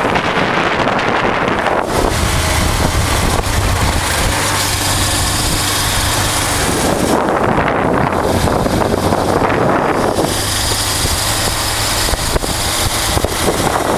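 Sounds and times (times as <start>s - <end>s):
motorcycle engine running: 0.0s - 13.9s
wind buffeting microphone: 0.0s - 13.9s.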